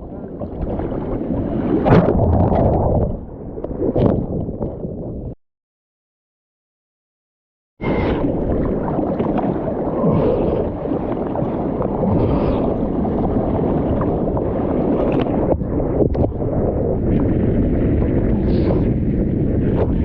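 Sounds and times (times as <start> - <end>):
surf rushing and splashing: 0.1 - 4.2, 7.8 - 20.0
wind buffeting microphone: 7.8 - 20.0.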